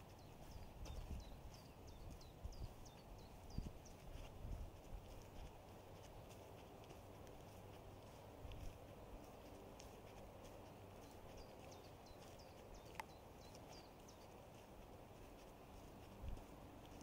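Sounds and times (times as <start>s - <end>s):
faint high bird chirps: 0.1s - 4.3s, 11.0s - 14.7s.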